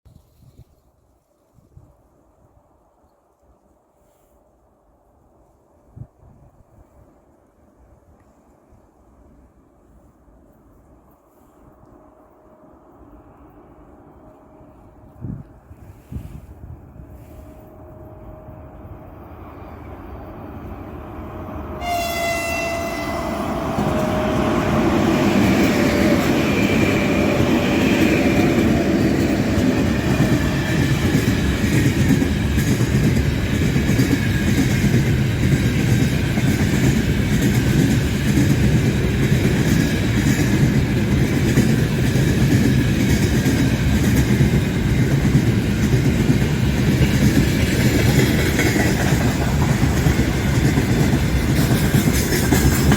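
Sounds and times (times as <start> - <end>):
train wagons rumbling: 17.1 - 52.9
locomotive horn: 21.1 - 24.9
wheels clickety-clack: 25.3 - 52.9.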